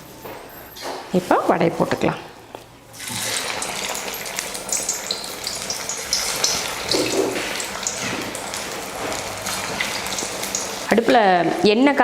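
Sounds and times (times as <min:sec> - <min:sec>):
food sizzling in hot oil: 0:03.0 - 0:11.8.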